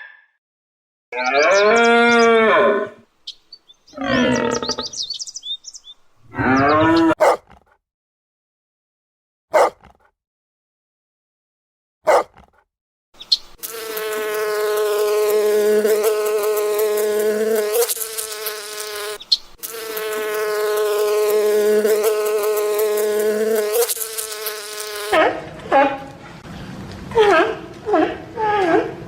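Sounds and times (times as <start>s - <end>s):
flying insect buzzing: 13.2s - 25.2s.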